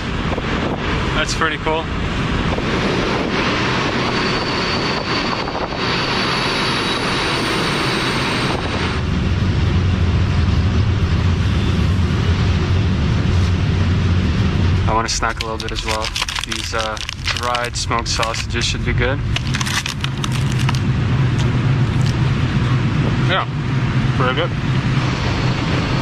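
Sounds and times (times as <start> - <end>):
wind on microphone: 0.0 - 6.2.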